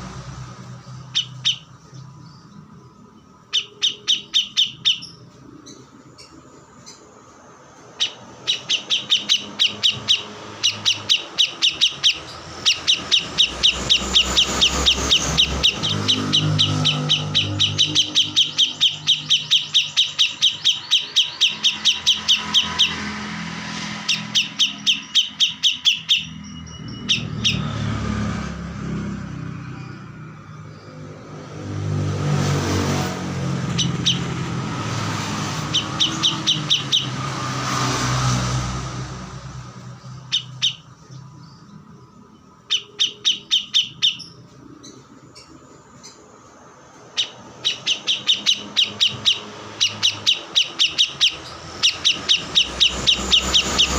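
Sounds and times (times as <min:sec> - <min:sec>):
songbird chirping: 0:00.0 - 0:53.9.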